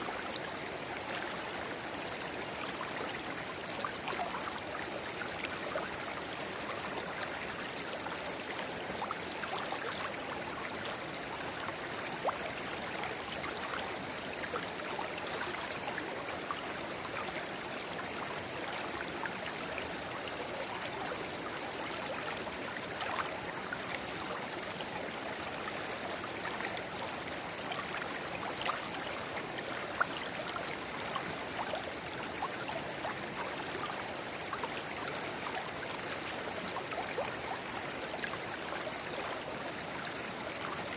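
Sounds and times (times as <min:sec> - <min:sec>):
water splashes and trickles: 0:00.0 - 0:40.9.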